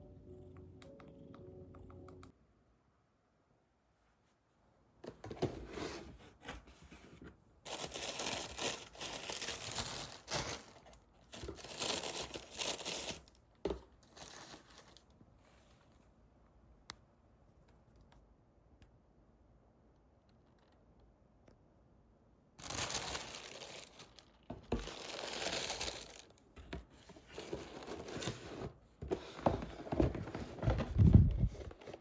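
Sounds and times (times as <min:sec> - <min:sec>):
wrapping material tearing and crumpling: 0:07.7 - 0:13.4, 0:22.6 - 0:26.4.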